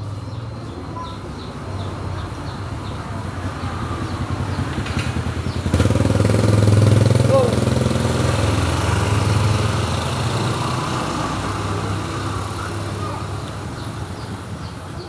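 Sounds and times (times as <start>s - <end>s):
small engine running: 4.0s - 14.8s.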